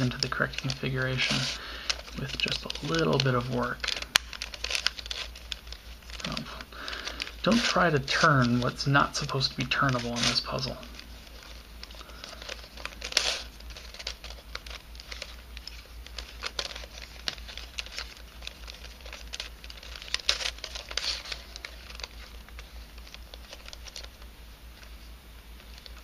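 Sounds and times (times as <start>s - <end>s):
steady low hum: 0.0s - 26.0s
twisty puzzle clicking and rattling: 11.4s - 22.3s.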